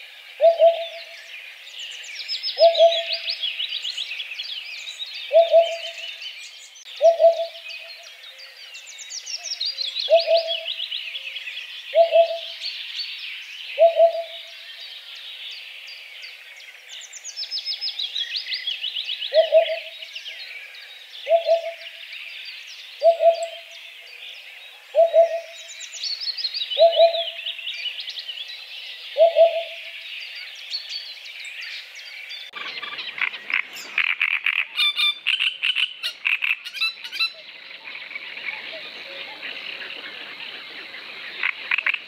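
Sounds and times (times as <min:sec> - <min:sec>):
songbirds singing: 0:00.0 - 0:42.0
bird low hooting calls: 0:00.4 - 0:01.3, 0:02.6 - 0:03.3, 0:05.2 - 0:06.2, 0:07.0 - 0:08.1, 0:10.1 - 0:10.8, 0:11.9 - 0:12.6, 0:13.8 - 0:14.6, 0:19.3 - 0:20.1, 0:21.2 - 0:22.0, 0:23.0 - 0:23.8, 0:24.9 - 0:25.7, 0:26.7 - 0:27.6, 0:29.1 - 0:30.0
harsh rapid bird song: 0:30.9 - 0:42.0.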